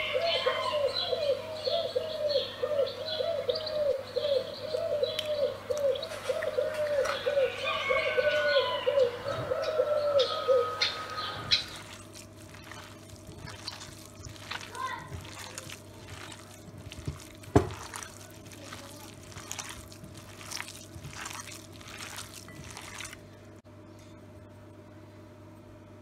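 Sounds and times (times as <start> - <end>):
bird cooing rapidly: 0.0 - 14.6
birds chirping and twittering: 0.0 - 23.6.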